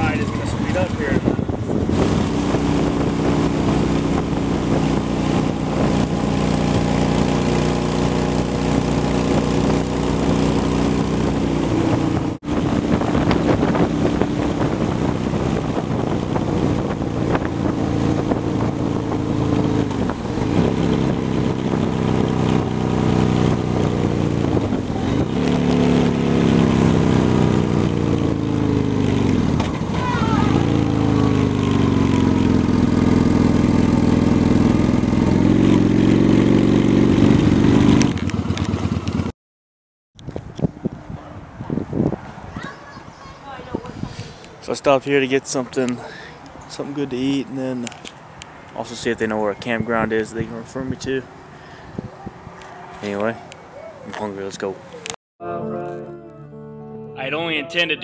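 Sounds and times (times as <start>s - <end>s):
wind noise on microphone: 0.0s - 7.0s, 10.3s - 28.4s, 40.2s - 44.4s, 49.8s - 52.6s
motorcycle engine running: 0.0s - 39.3s.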